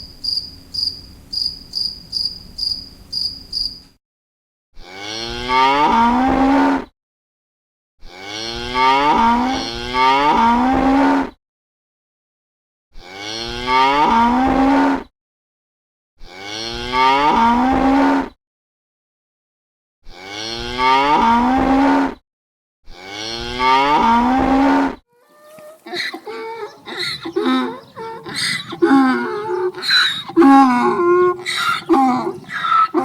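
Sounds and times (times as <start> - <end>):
cricket chirps: 0.0 - 3.9
cow mooing: 4.8 - 6.9, 8.0 - 11.4, 13.0 - 15.1, 16.2 - 18.3, 20.1 - 22.2, 22.9 - 33.0.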